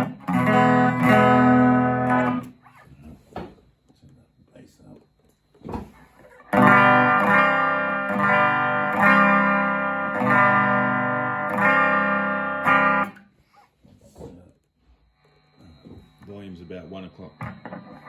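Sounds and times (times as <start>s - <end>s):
clean electric guitar chords strummed: 0.0s - 2.5s, 6.5s - 13.2s, 17.3s - 18.0s.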